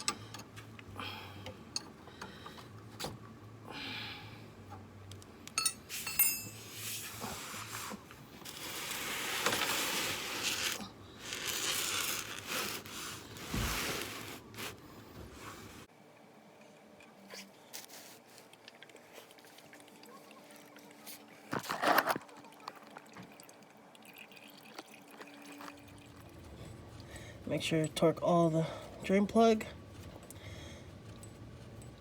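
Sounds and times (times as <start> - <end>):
wrenches clinking on metal: 5.5 - 6.8.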